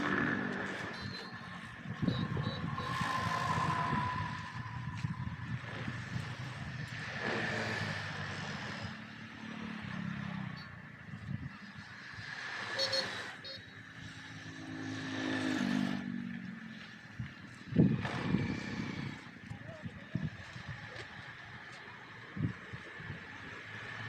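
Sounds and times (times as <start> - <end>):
high-pitched whine: 0.0 - 8.1
vehicle engines running: 0.0 - 24.0.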